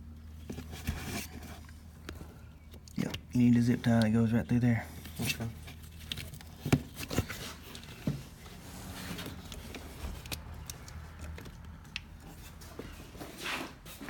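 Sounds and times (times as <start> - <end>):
hands handling small parts and tools: 5.0 - 12.7.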